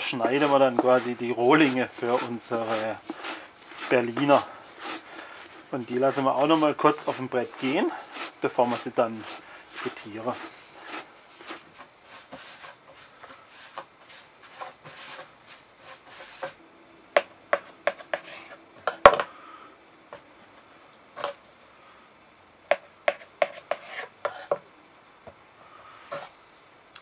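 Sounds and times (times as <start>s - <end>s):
dough rubbing on wooden board: 0.0s - 16.6s, 17.5s - 18.6s, 22.7s - 24.6s.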